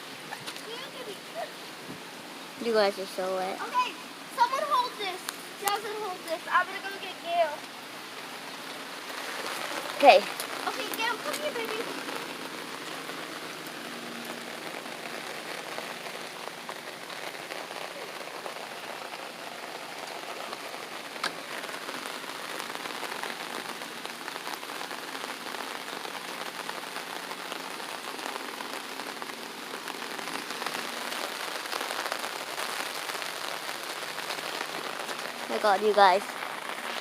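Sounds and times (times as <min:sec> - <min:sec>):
light rain falling: 0:00.0 - 0:37.0.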